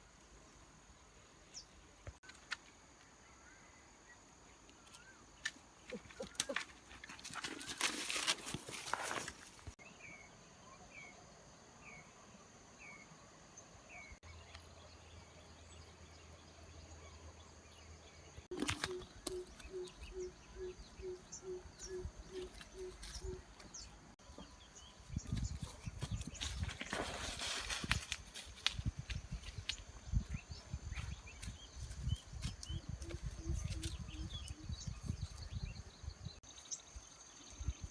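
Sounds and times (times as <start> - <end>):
rustling: 6.5 - 9.8.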